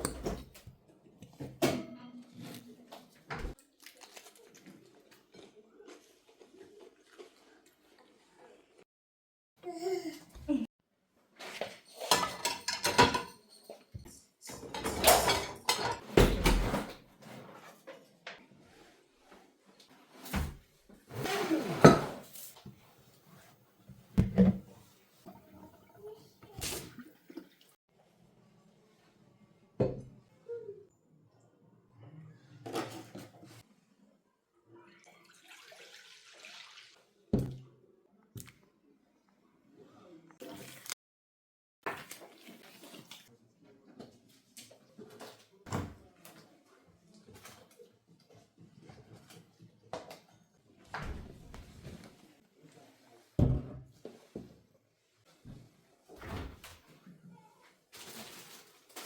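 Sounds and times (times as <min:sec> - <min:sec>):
household things knocking: 0:24.2 - 0:24.7.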